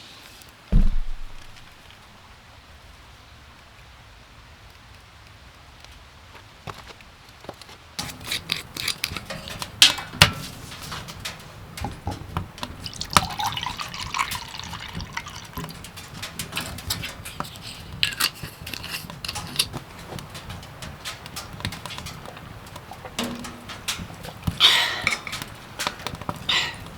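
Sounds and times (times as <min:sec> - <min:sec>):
handling clicks and knocks: 0:00.7 - 0:02.0, 0:06.7 - 0:26.9
liquid pouring into container: 0:12.6 - 0:16.1.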